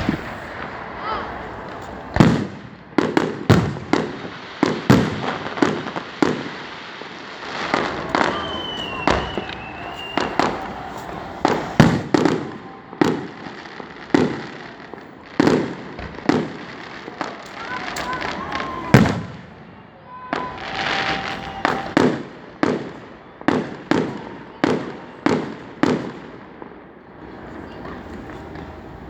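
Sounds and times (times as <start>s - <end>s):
fireworks booms and cracks: 0.0s - 29.0s
thin wavering whistle: 8.0s - 11.6s.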